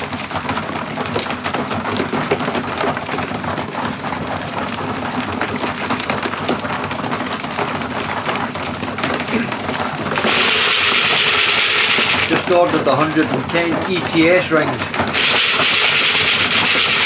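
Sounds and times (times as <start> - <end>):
pigeons clicking and scratching: 0.0 - 17.0
wings fluttering: 5.4 - 17.0.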